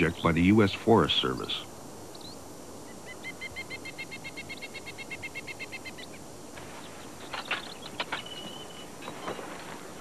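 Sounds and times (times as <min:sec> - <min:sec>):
bird trilling: 0:07.2 - 0:09.6.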